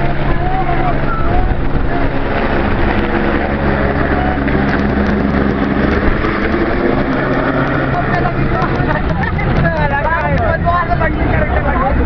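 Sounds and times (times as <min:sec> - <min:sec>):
helicopter rotor and turbine hum: 0:00.0 - 0:12.0
wind buffeting microphone: 0:00.0 - 0:12.0.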